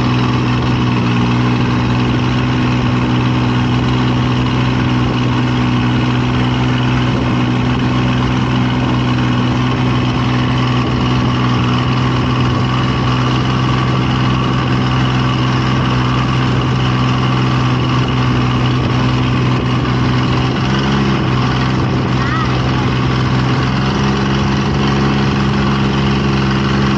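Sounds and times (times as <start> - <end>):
engine running with deep hum: 0.0 - 26.9.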